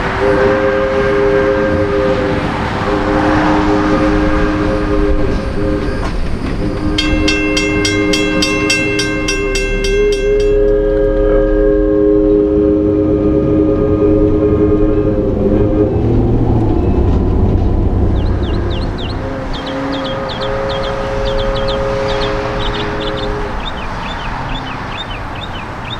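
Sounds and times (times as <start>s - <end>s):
locomotive air horn chord: 0.0s - 25.8s
locomotive bell ringing: 6.5s - 13.7s, 16.6s - 25.9s.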